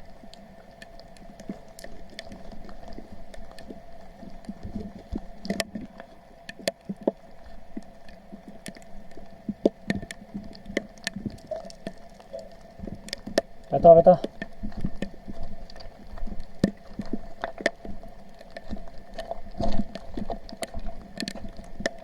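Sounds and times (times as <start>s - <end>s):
small clicks: 7.8s - 13.5s.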